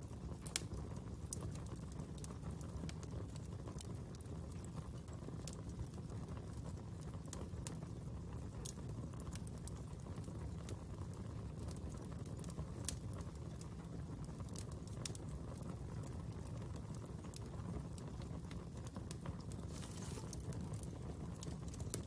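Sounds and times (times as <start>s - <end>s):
fire crackling and popping: 0.0s - 22.0s.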